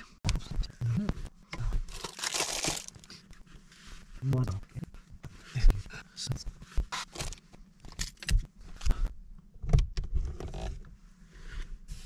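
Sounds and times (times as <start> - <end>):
rustling: 1.2 - 4.3.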